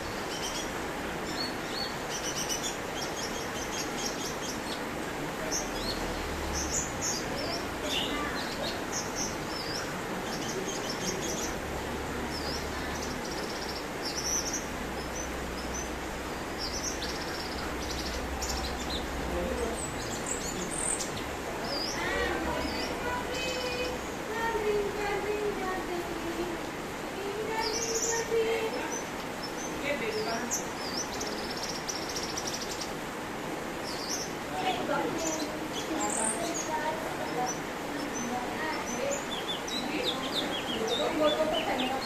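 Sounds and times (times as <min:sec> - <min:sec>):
steady background hiss: 0:00.0 - 0:42.0.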